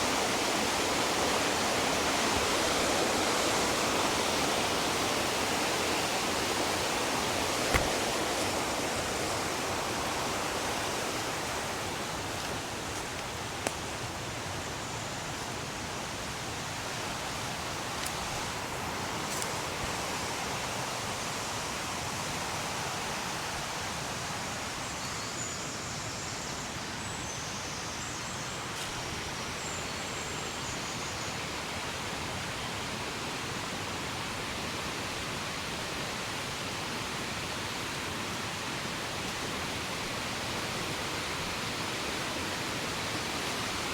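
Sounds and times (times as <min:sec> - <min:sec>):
river rushing: 0:00.0 - 0:23.2, 0:34.1 - 0:43.9
brief knock: 0:07.7 - 0:08.6.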